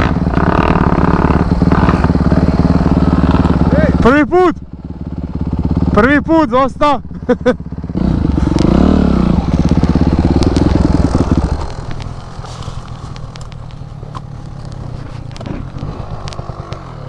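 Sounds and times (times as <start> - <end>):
crackling and scraping: 0.0 - 4.1, 8.3 - 17.0
motorcycle engine revving: 0.0 - 17.0.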